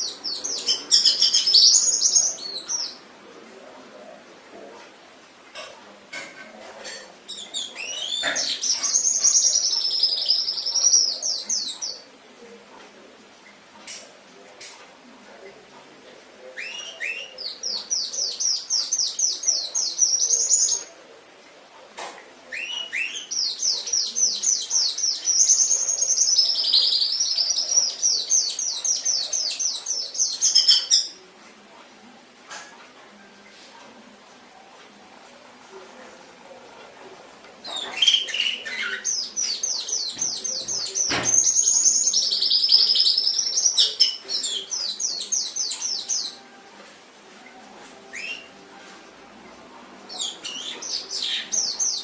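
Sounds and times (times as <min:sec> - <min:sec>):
canary singing: 0:00.0 - 0:03.1, 0:06.9 - 0:12.1, 0:16.4 - 0:21.0, 0:22.5 - 0:31.3, 0:37.6 - 0:52.0.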